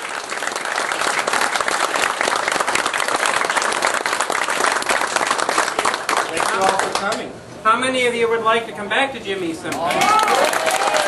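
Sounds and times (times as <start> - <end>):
group applauding: 0.0 - 7.3, 9.7 - 11.0.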